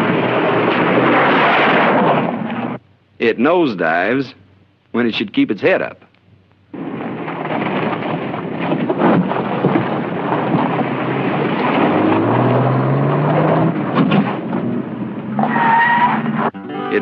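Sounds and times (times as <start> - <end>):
tyre road noise: 0.0 - 2.8, 6.8 - 17.0
car engine revving: 10.3 - 15.4.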